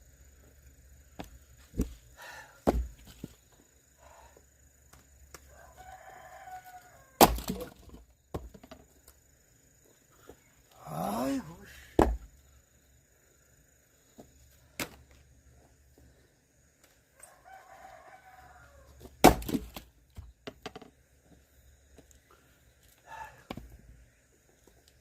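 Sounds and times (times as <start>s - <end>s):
axe striking firewood: 2.6s - 3.2s, 7.2s - 8.8s, 12.0s - 12.3s, 19.2s - 20.3s
rooster crowing: 5.5s - 7.3s, 17.1s - 19.0s, 23.0s - 23.5s.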